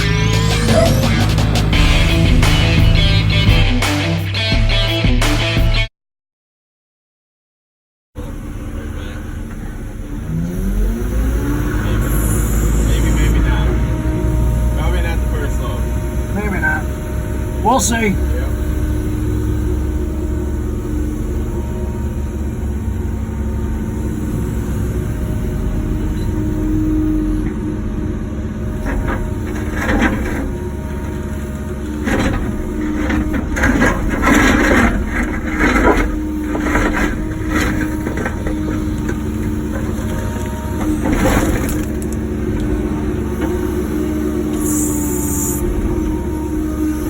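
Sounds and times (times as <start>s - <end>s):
excavator diesel engine running: 0.0s - 5.5s, 8.2s - 47.0s
bucket crunching and scraping concrete: 27.2s - 47.0s.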